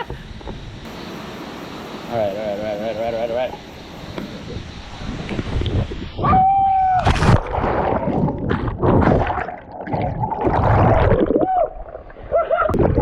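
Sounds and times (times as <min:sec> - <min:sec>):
water splashing and churning: 0:06.8 - 0:13.0.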